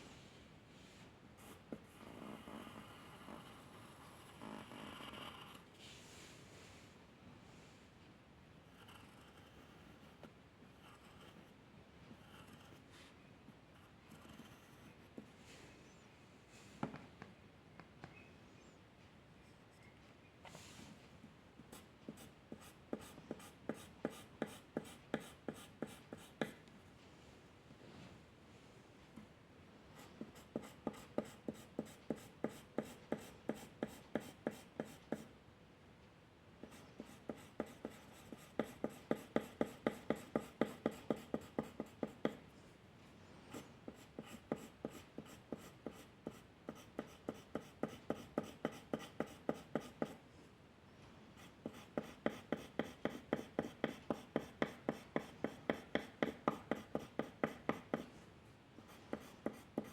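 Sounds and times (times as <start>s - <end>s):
drawing tool scratching on paper: 13.8s - 15.1s, 21.7s - 26.6s, 30.0s - 35.3s, 36.6s - 42.4s, 43.5s - 50.2s, 51.4s - 58.1s, 58.9s - 59.9s.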